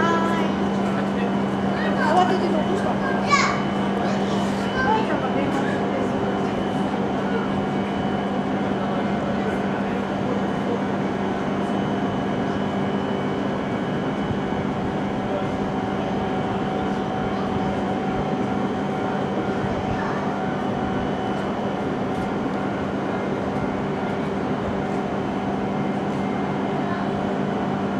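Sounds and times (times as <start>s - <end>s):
train humming: 0.0s - 27.9s.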